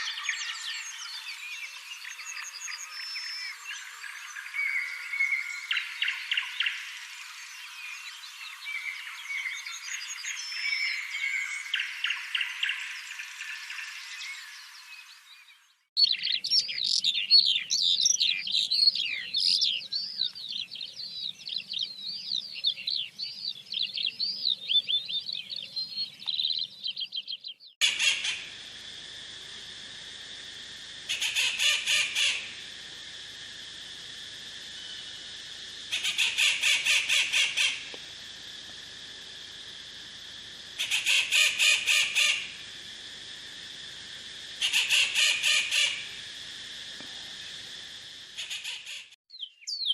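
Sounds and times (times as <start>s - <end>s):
birds twittering song: 0.0s - 28.6s, 34.1s - 38.0s, 44.5s - 49.9s.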